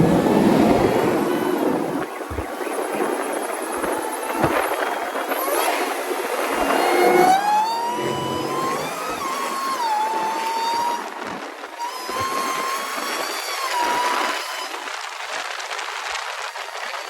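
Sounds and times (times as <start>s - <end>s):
car engine and road noise: 0.0s - 11.7s
supercharger whining: 0.0s - 15.0s.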